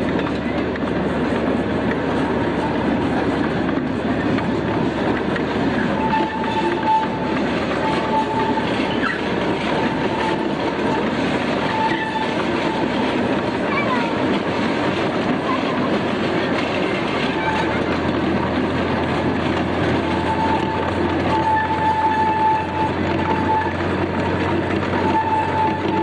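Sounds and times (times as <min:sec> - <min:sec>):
train cars rumbling and clattering: 0:00.0 - 0:26.0
high wheel squeal: 0:04.1 - 0:18.5, 0:19.1 - 0:26.0.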